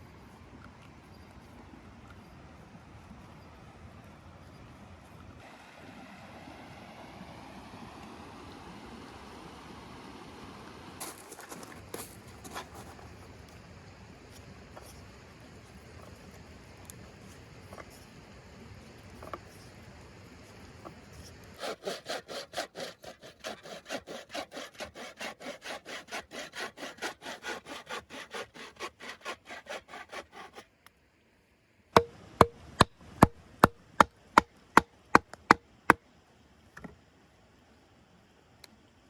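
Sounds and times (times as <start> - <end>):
hand saw cutting wood: 11.0 - 13.2, 20.8 - 30.7.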